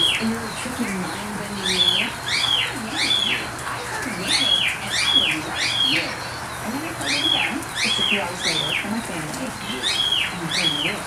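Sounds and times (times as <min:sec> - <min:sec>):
bird singing whistled notes: 0:01.6 - 0:03.5, 0:04.2 - 0:11.0.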